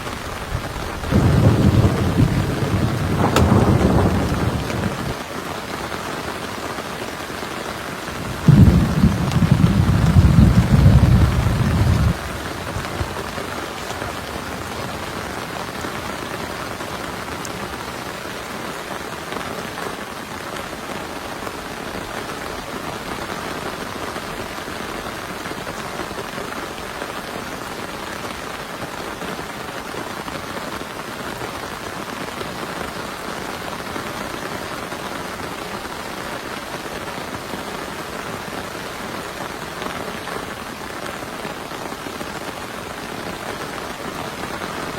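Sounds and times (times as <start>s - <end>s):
steady rain hiss: 0.0s - 44.9s
low rumble of thunder: 0.5s - 5.2s, 8.2s - 13.5s.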